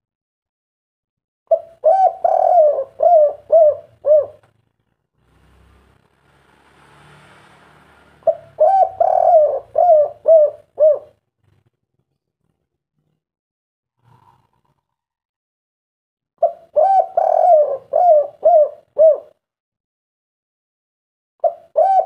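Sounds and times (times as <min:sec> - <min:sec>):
dove cooing: 0:01.5 - 0:04.5, 0:08.2 - 0:11.2, 0:16.4 - 0:19.4, 0:21.4 - 0:22.0
faint hiss: 0:05.3 - 0:08.2.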